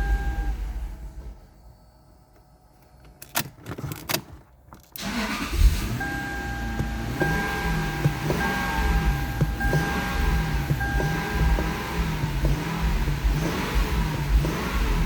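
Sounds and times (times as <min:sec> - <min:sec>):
car engine starting and idling: 0:00.0 - 0:01.6, 0:03.2 - 0:15.0
intermittent steady tone: 0:00.0 - 0:03.4.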